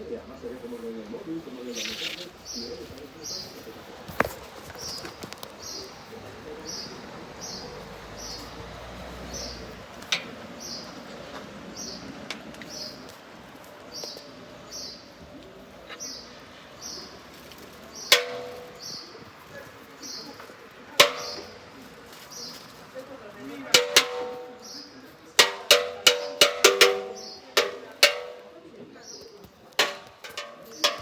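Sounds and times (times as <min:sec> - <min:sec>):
small bird chirping: 0:01.6 - 0:03.6, 0:25.7 - 0:28.2
sharp knocks: 0:18.1 - 0:19.2, 0:21.0 - 0:21.7, 0:23.8 - 0:28.6, 0:29.8 - 0:31.0.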